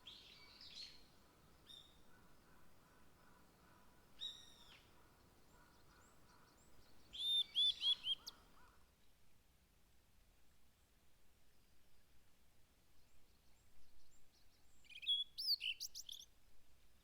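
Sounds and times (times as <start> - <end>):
songbirds chirping: 0.0 - 8.7
faint background hiss: 0.0 - 17.0.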